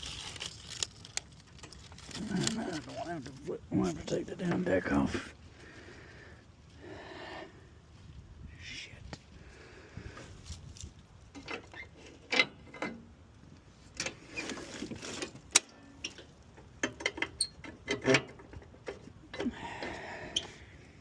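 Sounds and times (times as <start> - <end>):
metallic clicks and scraping: 10.7 - 13.1, 13.9 - 20.6.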